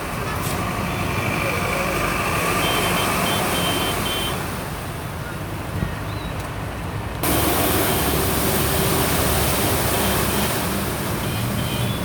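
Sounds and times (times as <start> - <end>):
low vehicle engine rumble: 4.8 - 12.0
heavy rain falling: 7.2 - 12.0.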